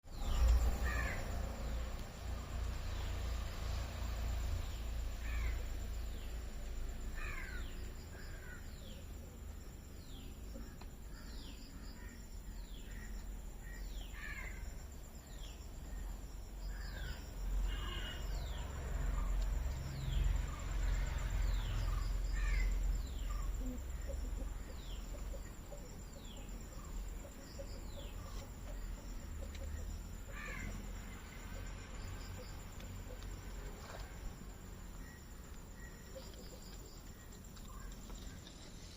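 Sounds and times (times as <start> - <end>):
crows cawing: 0.8 - 1.3, 7.2 - 7.6, 17.7 - 18.3, 22.4 - 22.7, 30.3 - 30.7.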